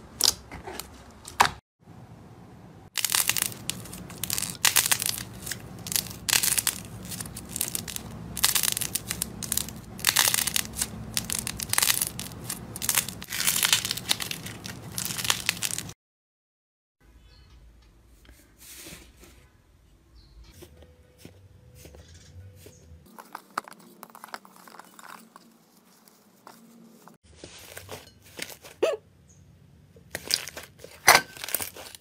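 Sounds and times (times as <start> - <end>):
crunchy slime crackling: 2.9 - 16.0, 23.0 - 28.8, 30.1 - 32.0.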